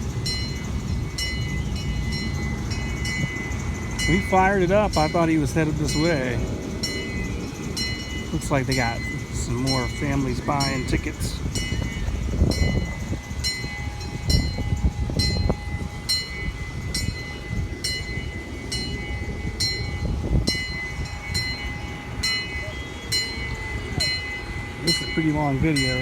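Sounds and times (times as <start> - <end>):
crossing signal bell ringing: 0.0 - 26.0
low outdoor rumble: 0.0 - 26.0.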